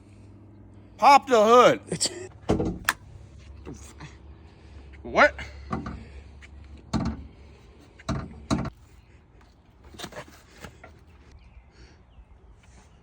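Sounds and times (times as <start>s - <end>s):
sharp knocks and clunks: 2.4s - 3.0s, 5.6s - 6.1s, 6.9s - 7.4s, 8.0s - 8.8s.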